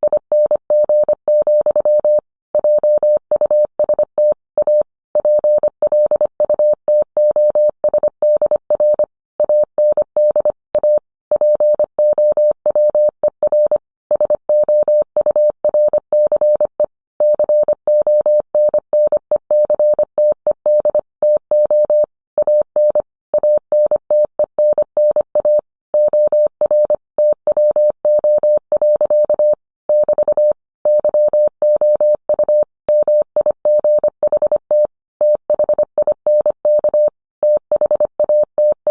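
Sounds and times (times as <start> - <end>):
morse code tone: 24.6 - 38.9.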